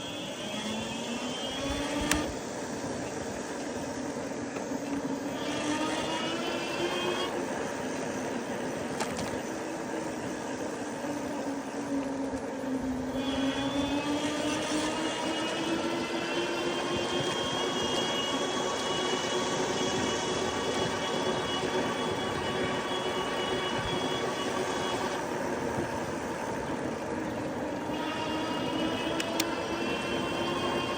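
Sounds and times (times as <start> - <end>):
electric motor whining: 0.0 - 30.9
higher whine: 0.0 - 30.9
wind noise: 12.2 - 30.9.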